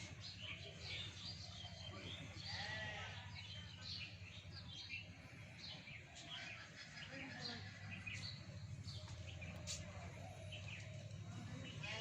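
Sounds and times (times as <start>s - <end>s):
sheep bleating: 2.4s - 3.3s.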